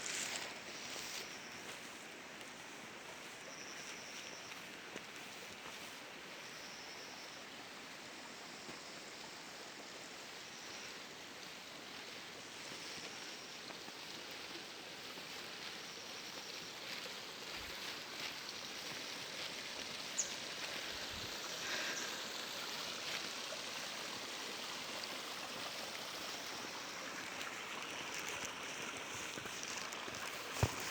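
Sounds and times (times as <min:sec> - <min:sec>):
water flowing in a stream: 0:00.0 - 0:30.9.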